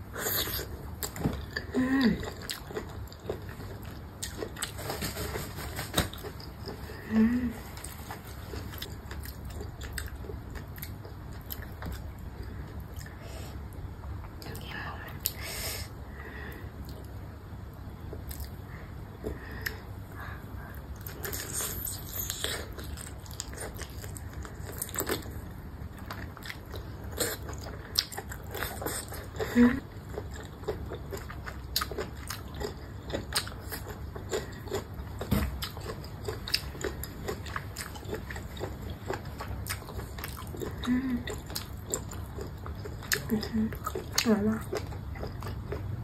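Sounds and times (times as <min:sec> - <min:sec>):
biting and chewing food: 0:00.3 - 0:13.2, 0:20.9 - 0:46.0.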